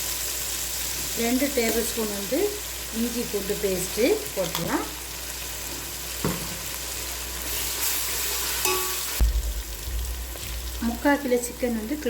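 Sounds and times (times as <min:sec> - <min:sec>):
food sizzling in a pan: 0:00.0 - 0:12.0
low bump: 0:09.2 - 0:10.1.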